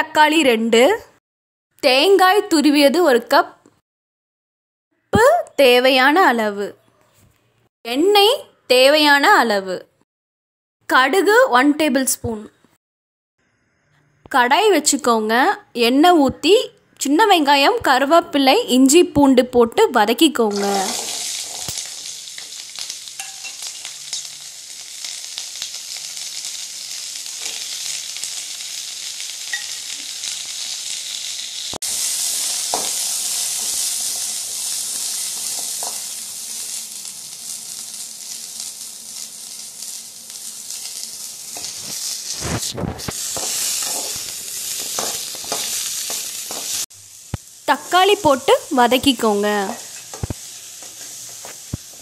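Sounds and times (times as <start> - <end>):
food sizzling in hot oil: 20.1 - 52.0.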